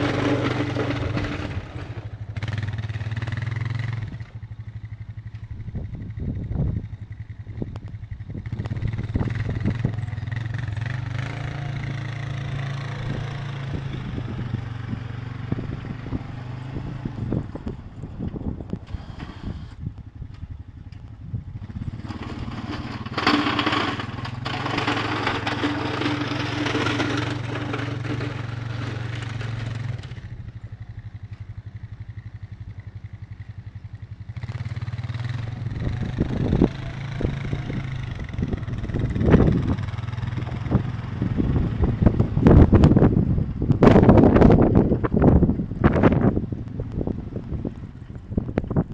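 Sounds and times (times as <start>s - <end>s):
engine running steadily: 0.0s - 48.9s.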